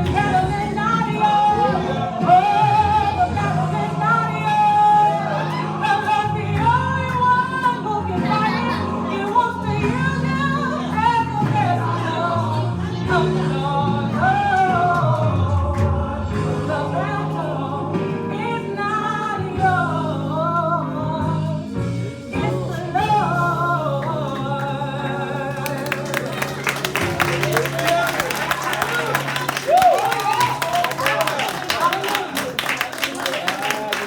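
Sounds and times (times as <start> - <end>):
instrumental accompaniment: 0.0 - 33.7
person singing gospel: 0.0 - 34.0
audience applause: 25.2 - 34.0.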